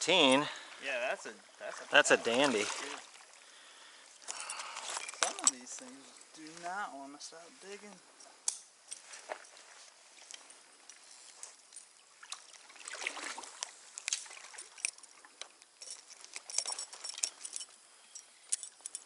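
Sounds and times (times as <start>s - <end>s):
stream water splashing: 0.0s - 6.7s, 9.1s - 17.4s.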